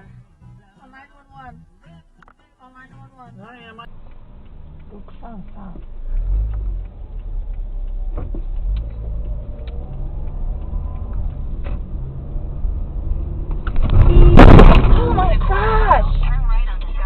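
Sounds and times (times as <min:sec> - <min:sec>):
car driving rumble: 0:03.0 - 0:17.0.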